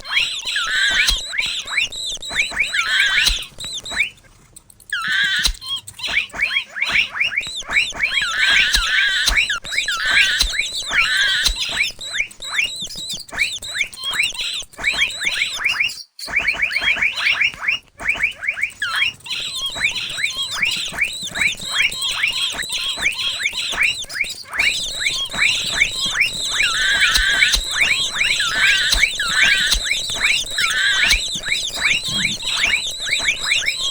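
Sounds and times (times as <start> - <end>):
high mouse squeaks: 0.0 - 33.9
thin high whine: 24.6 - 33.9.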